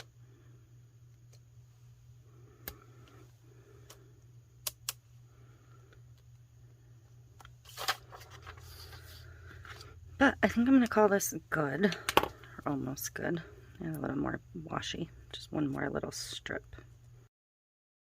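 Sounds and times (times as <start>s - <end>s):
paper rustling: 7.6s - 9.9s.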